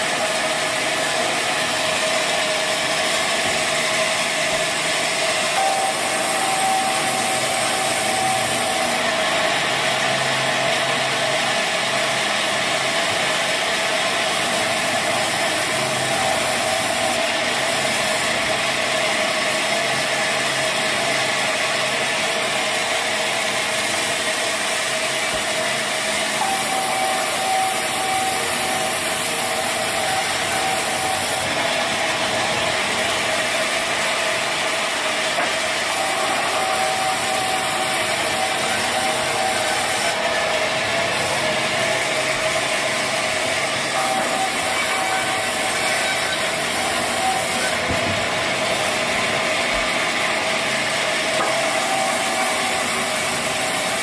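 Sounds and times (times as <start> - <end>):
sawmill saw grinding through log: 0.0 - 54.0
thin whine: 5.1 - 9.6, 26.3 - 54.0.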